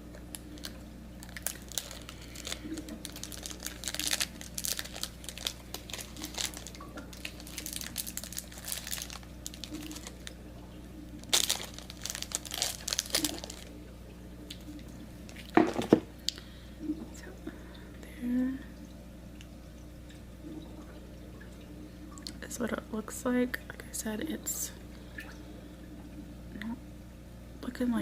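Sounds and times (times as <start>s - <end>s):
wrapper crinkling and rustling: 0.3s - 10.4s, 11.1s - 13.8s, 15.2s - 16.0s.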